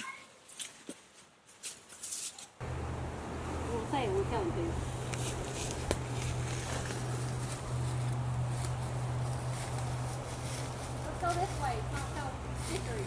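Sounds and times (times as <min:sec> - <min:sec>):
steady low hum: 0:02.6 - 0:13.0.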